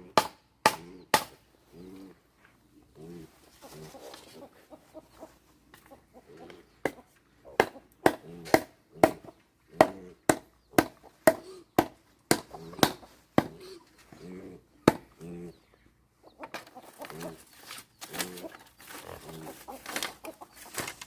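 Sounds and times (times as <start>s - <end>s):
blade chopping: 0.1s - 1.4s.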